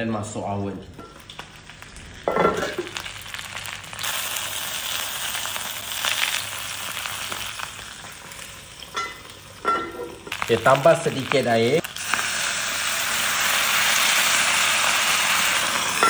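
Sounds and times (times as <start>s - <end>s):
food sizzling in hot oil: 0.8s - 16.0s.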